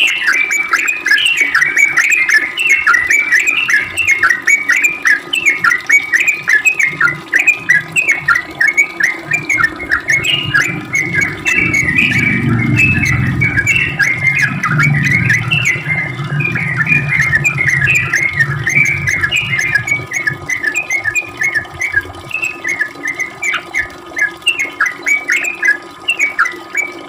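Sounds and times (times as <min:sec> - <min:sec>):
low hum: 0:09.3 - 0:23.6.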